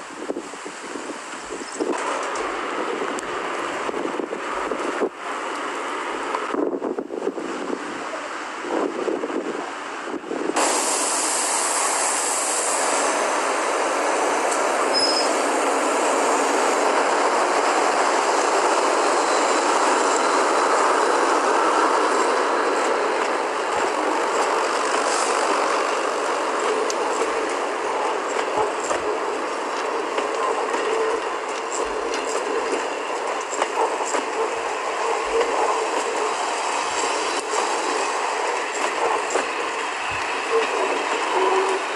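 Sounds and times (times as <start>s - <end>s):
train wheels rumbling on rails: 0.0s - 41.9s
faint clicks over rail joints: 1.3s - 3.4s, 28.2s - 34.6s, 38.7s - 41.9s.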